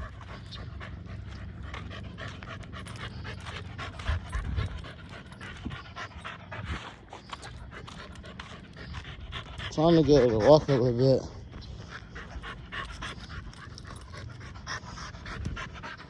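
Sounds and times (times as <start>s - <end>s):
puppy panting: 0.0s - 16.0s.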